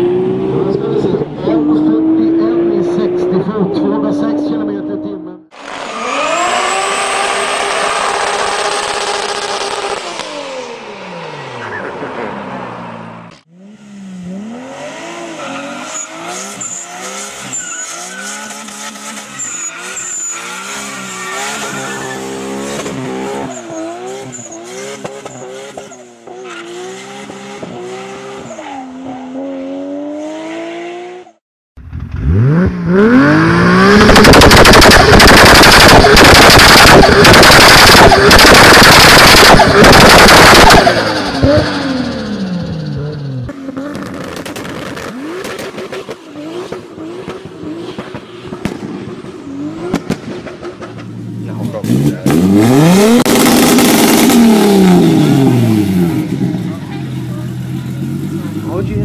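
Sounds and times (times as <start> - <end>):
car engine revving: 0.0 - 31.4, 32.0 - 59.0
exhaust popping bangs: 33.8 - 42.1, 43.8 - 52.6.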